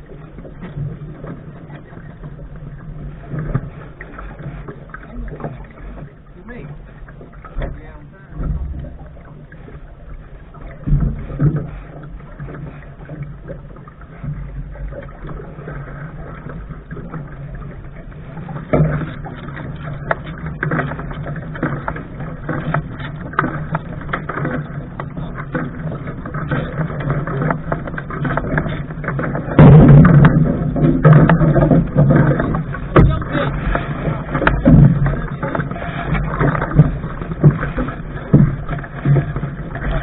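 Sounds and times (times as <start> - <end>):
water and wind rumble on boat: 0.0 - 40.0
knocks on boat: 7.5 - 9.6, 18.5 - 40.0.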